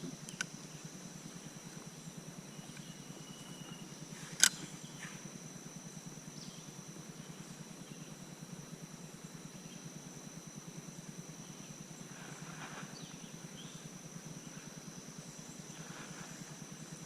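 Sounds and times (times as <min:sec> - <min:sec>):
faint chirps: 0:00.0 - 0:05.3
high insect drone: 0:00.0 - 0:17.0.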